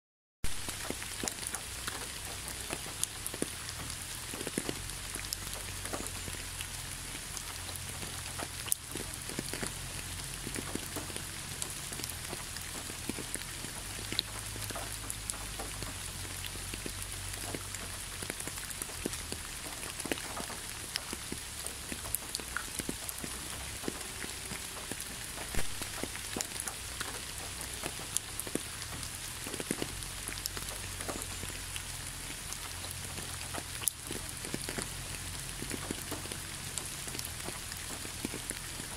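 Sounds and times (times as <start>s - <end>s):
rain hissing on leaves: 0.4s - 38.9s
raindrops ticking: 0.4s - 38.9s.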